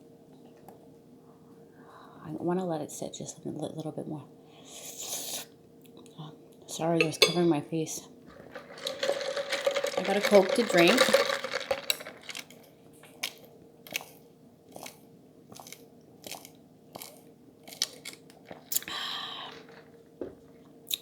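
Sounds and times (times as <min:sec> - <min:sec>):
person gulping a drink: 0:08.3 - 0:12.4, 0:18.4 - 0:20.3.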